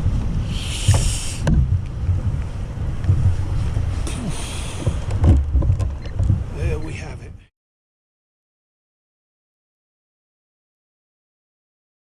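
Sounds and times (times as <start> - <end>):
water splashes: 0.0 - 6.8
wind buffeting microphone: 0.0 - 7.5
knocks against hull: 0.9 - 2.4, 4.7 - 6.6.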